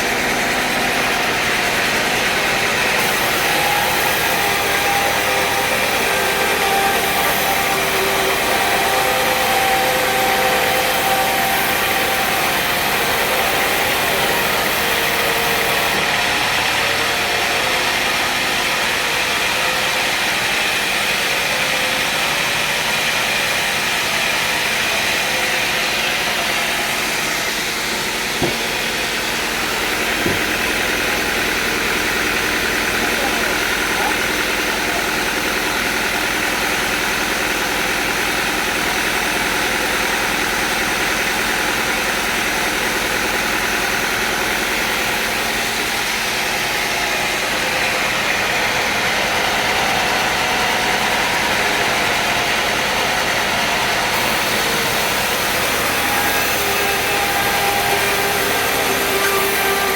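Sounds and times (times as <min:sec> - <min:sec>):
sawmill engine running: 0:00.0 - 0:59.9
brief knocks: 0:28.4 - 0:28.8.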